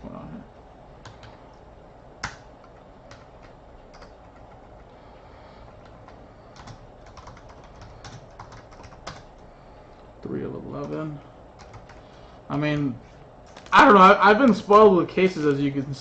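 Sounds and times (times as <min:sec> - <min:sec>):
typing on a computer keyboard: 0:01.0 - 0:01.4, 0:02.2 - 0:04.8, 0:05.7 - 0:09.4, 0:11.6 - 0:12.1.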